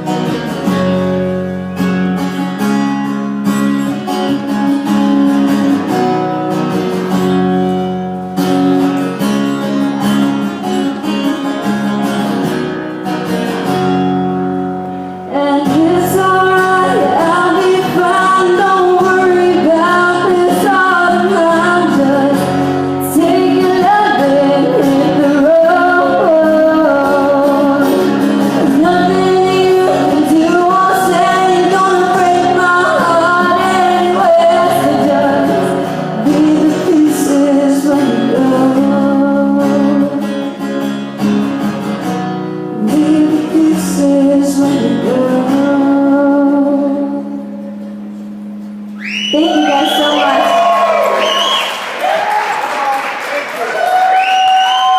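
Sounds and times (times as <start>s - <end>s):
acoustic guitar playing chords: 0.0s - 52.9s
woman singing: 15.3s - 40.4s, 42.8s - 47.6s.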